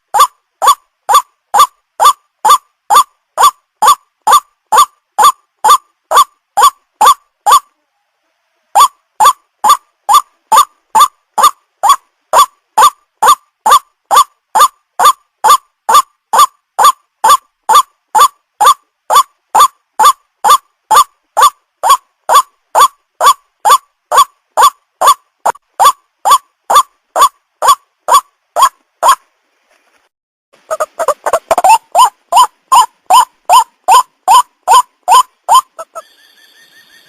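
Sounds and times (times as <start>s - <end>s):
waterhen calling: 0.1s - 7.7s, 8.8s - 29.2s, 30.6s - 36.2s.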